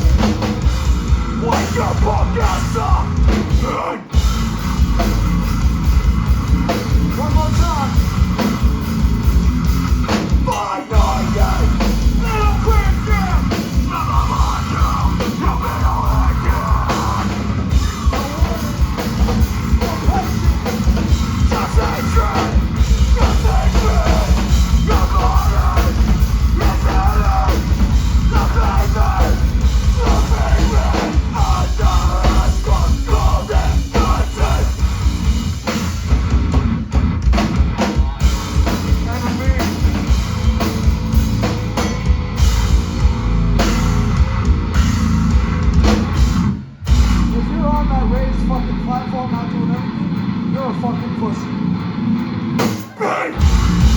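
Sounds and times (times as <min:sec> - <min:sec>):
live rock band playing: 0:00.0 - 0:53.9
pounding drum kit: 0:00.0 - 0:53.9
shouted vocals: 0:01.4 - 0:04.1, 0:10.4 - 0:19.0, 0:21.3 - 0:34.8, 0:52.7 - 0:53.9.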